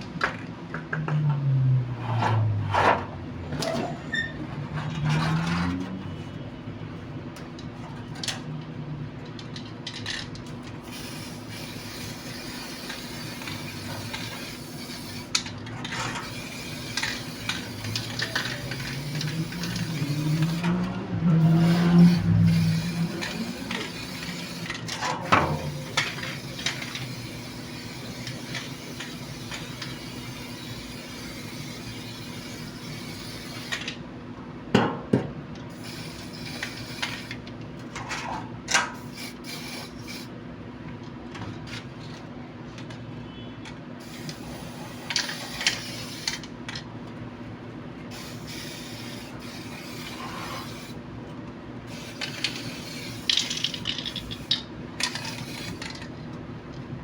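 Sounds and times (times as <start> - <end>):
scraping and rubbing metal: 1.9 - 3.2.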